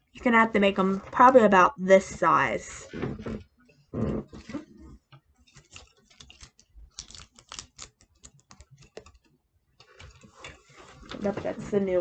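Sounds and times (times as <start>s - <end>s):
material crinkling being crumpled: 4.3s - 12.0s.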